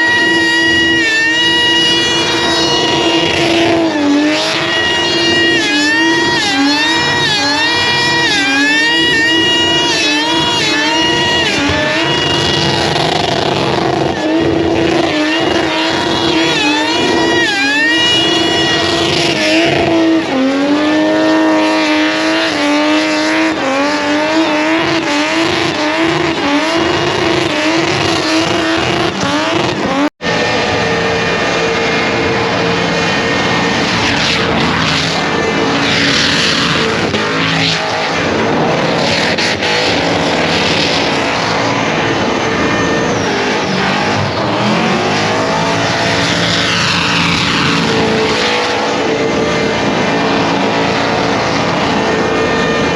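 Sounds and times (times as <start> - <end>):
car engine revving hard: 0.0 - 52.9.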